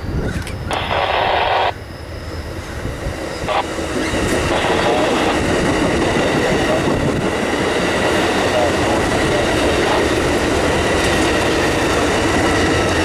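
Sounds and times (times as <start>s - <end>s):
passenger train passing: 0.0s - 13.0s
radio static burst: 0.7s - 1.8s, 3.4s - 5.6s.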